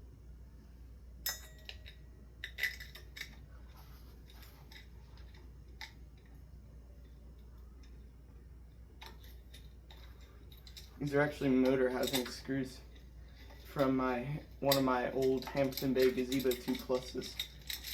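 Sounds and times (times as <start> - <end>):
steady low hum: 0.0 - 17.9
metal parts clinking: 1.3 - 6.4, 8.9 - 17.9.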